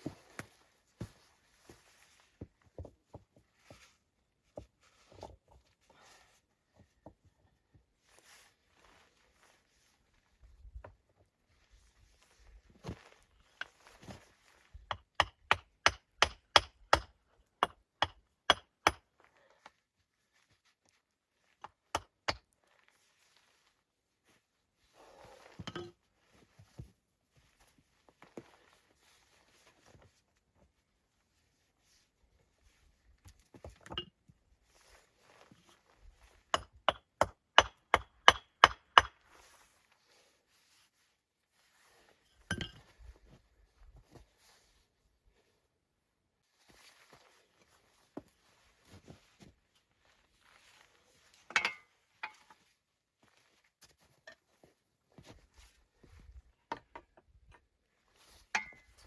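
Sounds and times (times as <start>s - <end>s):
hand tool striking wood: 14.9s - 19.1s, 36.6s - 39.2s.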